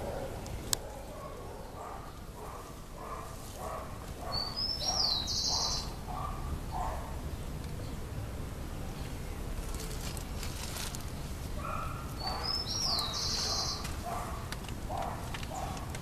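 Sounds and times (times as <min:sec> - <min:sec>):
bird calling: 0:00.0 - 0:07.0, 0:11.6 - 0:16.0.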